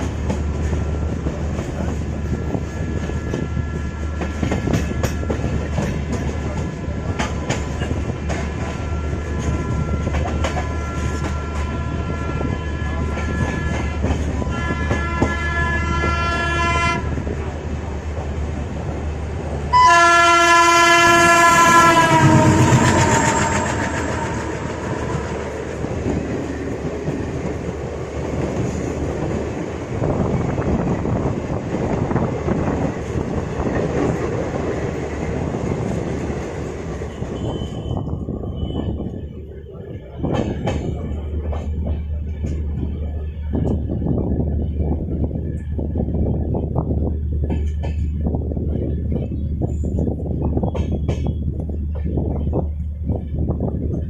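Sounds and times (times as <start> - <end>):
train rolling rumble: 0.0 - 54.0
train horn blast: 2.2 - 5.6, 8.6 - 17.2, 19.7 - 25.6
wheels clacking over rail joints: 40.0 - 43.9.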